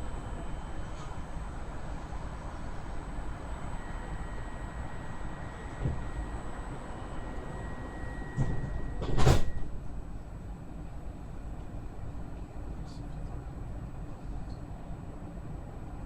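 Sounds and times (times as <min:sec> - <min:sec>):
train rumbling on rails: 0:05.6 - 0:10.2.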